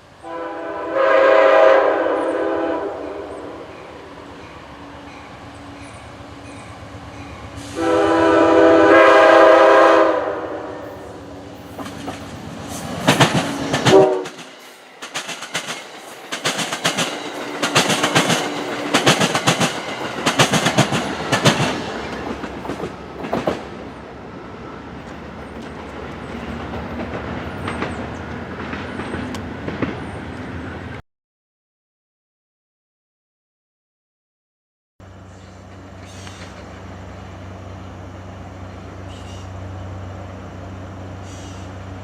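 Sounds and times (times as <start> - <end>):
train rumble: 0.0 - 31.0, 35.0 - 42.0
wheels clicking over rail joints: 11.4 - 24.1, 24.9 - 30.6, 35.4 - 37.3.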